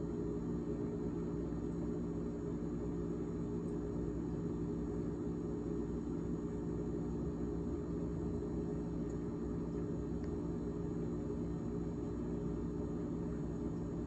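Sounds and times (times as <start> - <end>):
refrigerator fan droning: 0.0 - 14.0.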